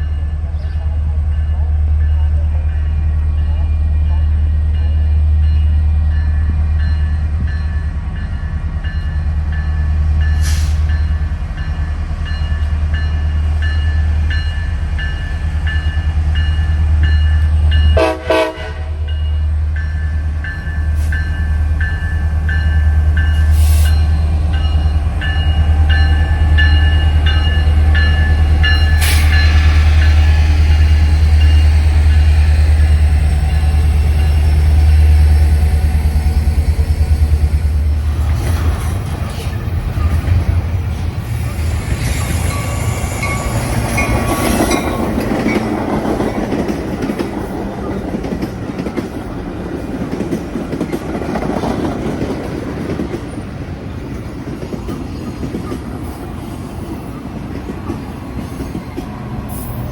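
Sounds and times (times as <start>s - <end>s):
railroad crossing bell ringing: 0.0s - 38.0s, 39.2s - 45.8s
train horn blast: 17.9s - 19.2s.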